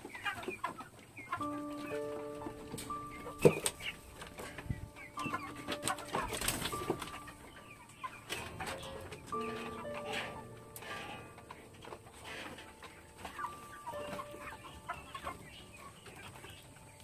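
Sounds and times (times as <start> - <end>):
chickens clucking: 0.0 - 17.0
soft background music: 0.0 - 17.0.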